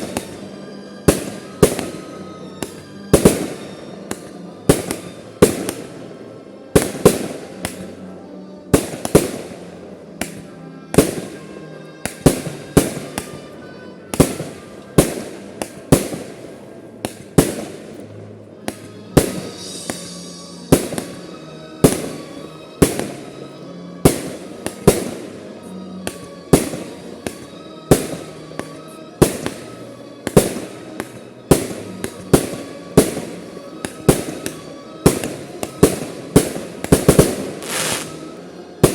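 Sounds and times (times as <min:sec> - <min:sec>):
fireworks bangs: 0:00.0 - 0:00.5, 0:30.3 - 0:38.9.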